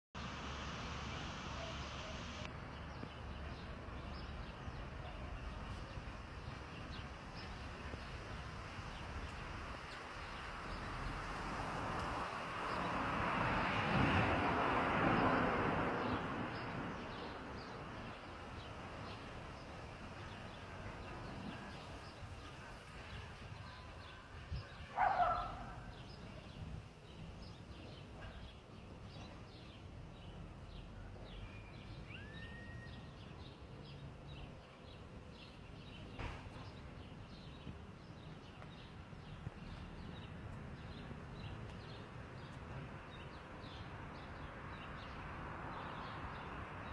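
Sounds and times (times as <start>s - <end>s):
rushing noise: 0.2s - 2.5s
birds calling: 16.0s - 26.3s.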